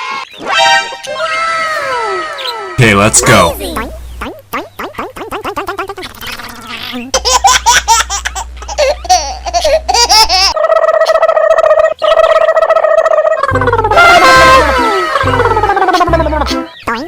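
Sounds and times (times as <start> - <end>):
baby giggling: 4.8 - 11.8, 12.4 - 16.7.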